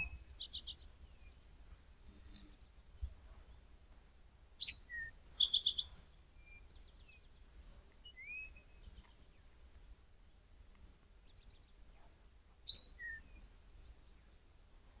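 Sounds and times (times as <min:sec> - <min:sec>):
birds chirping and whistling: 0:00.0 - 0:01.4, 0:04.6 - 0:07.2, 0:08.0 - 0:09.2, 0:12.7 - 0:13.5
faint low outdoor hum: 0:00.0 - 0:15.0.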